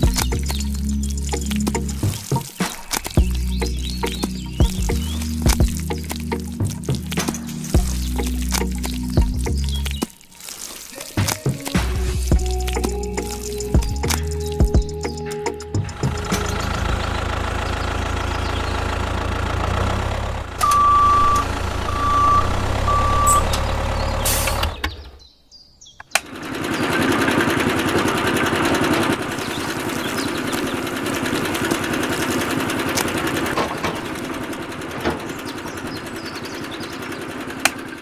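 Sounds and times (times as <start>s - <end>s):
vehicle engine running: 0.0s - 10.0s, 11.5s - 25.0s, 26.2s - 38.0s
short even beeps: 20.6s - 23.6s.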